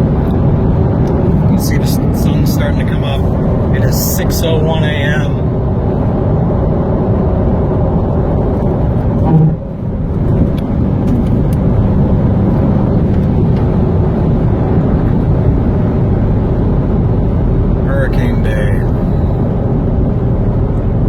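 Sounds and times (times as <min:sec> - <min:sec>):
car engine and road noise drone: 0:00.0 - 0:21.0
loud bump: 0:09.2 - 0:09.7.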